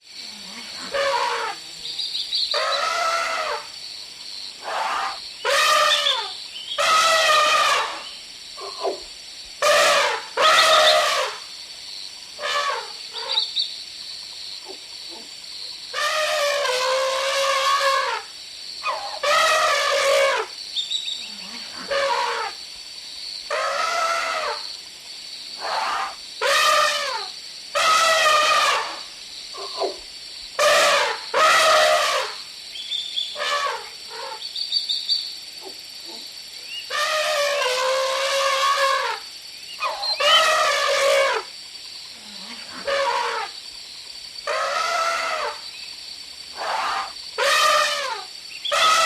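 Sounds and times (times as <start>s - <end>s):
loud pitched animal calls: 0.6s - 1.6s, 2.5s - 3.8s, 4.6s - 9.0s, 9.6s - 11.4s, 12.4s - 13.5s, 15.9s - 20.5s, 21.4s - 22.6s, 23.5s - 24.6s, 25.6s - 30.0s, 30.6s - 32.4s, 33.3s - 34.4s, 36.9s - 39.2s, 39.8s - 41.5s, 42.4s - 43.6s, 44.4s - 45.6s, 46.5s - 49.0s
elephant trumpeting: 0.7s - 1.6s, 2.5s - 3.7s, 4.6s - 9.0s, 9.6s - 11.4s, 12.4s - 13.4s, 15.9s - 20.5s, 21.7s - 22.6s, 23.5s - 24.6s, 25.6s - 29.0s, 30.6s - 32.4s, 33.4s - 34.4s, 36.9s - 39.2s, 39.8s - 41.5s, 42.4s - 43.6s, 44.4s - 45.6s, 46.6s - 49.0s.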